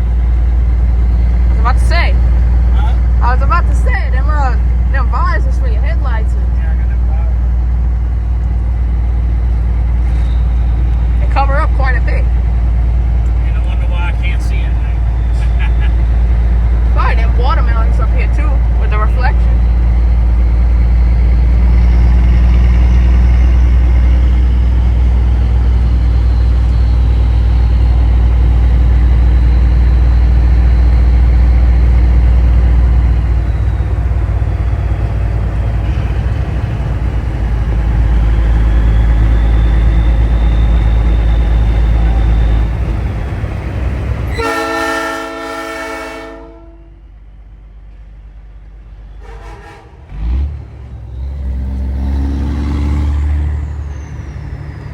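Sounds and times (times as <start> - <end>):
truck engine and road rumble: 0.0 - 54.9
train horn blast: 44.3 - 47.0, 49.2 - 50.5.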